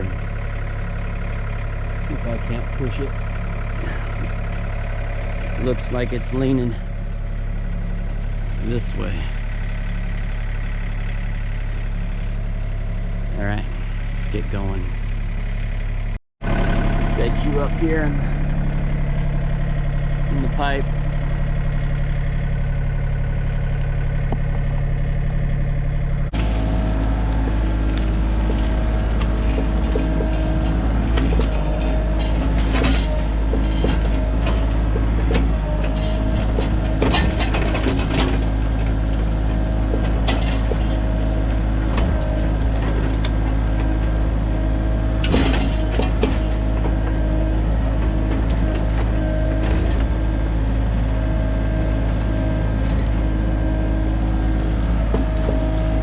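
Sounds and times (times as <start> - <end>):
excavator diesel engine running: 0.0 - 56.0
sharp cracks and knocks: 27.6 - 44.0.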